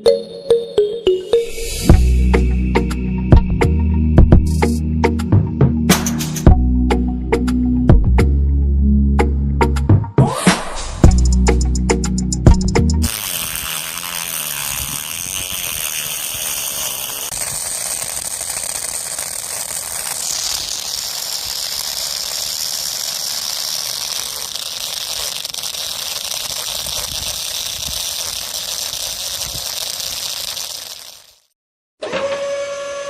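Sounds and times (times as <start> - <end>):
high whine changing pitch: 1.1 - 5.1
motor rattling whir: 11.1 - 33.0.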